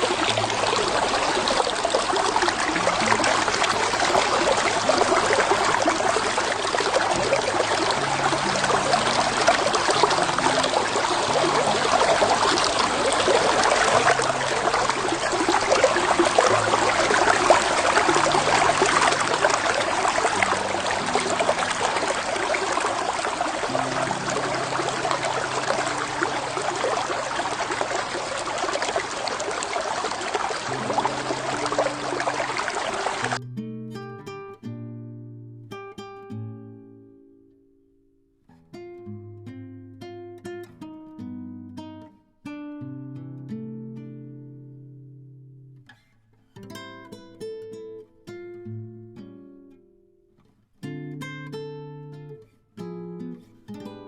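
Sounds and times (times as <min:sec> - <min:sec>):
creek flowing over stones: 0:00.0 - 0:33.4.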